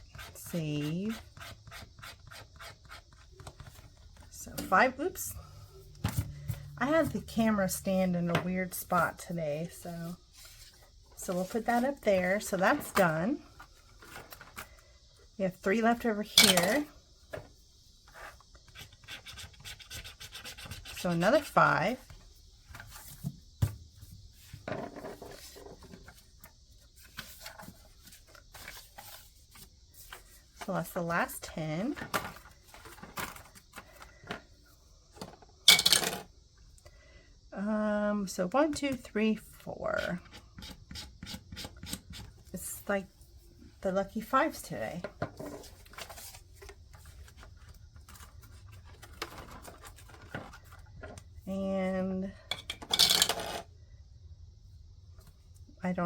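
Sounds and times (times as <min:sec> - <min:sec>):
cicadas droning: 0:00.0 - 0:35.7
paper rustling and scratching: 0:24.4 - 0:30.8, 0:45.6 - 0:50.9.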